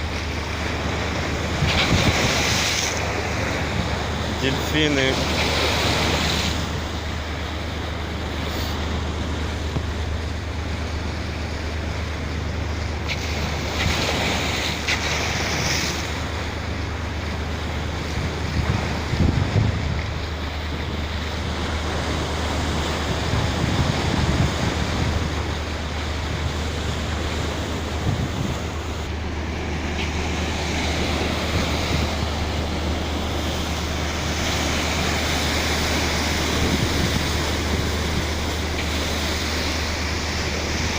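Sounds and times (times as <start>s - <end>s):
wind buffeting microphone: 0.0s - 4.4s, 17.8s - 29.2s, 30.4s - 40.9s
sea waves washing: 0.0s - 40.9s
steady low hum: 0.0s - 40.9s.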